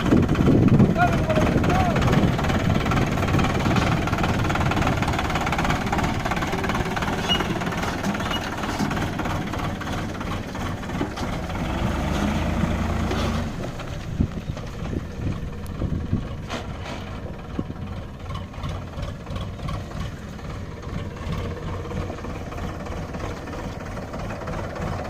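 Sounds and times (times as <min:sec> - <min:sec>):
tractor diesel engine rumbling: 0:00.0 - 0:25.0.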